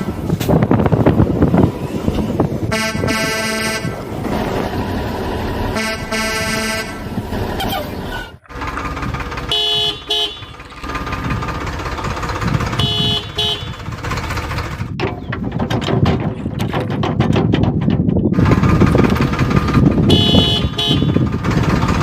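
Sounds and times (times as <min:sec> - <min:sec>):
engine noise: 0:00.0 - 0:22.0
vehicle horn tooting: 0:02.7 - 0:04.0, 0:05.7 - 0:07.0, 0:09.5 - 0:10.6, 0:12.7 - 0:13.9, 0:20.0 - 0:21.3.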